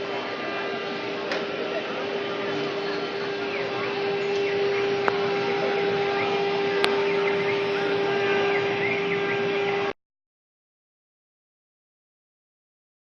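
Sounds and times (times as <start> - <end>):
router spindle whine: 0.0 - 10.0
rushing cutting noise: 0.0 - 10.0.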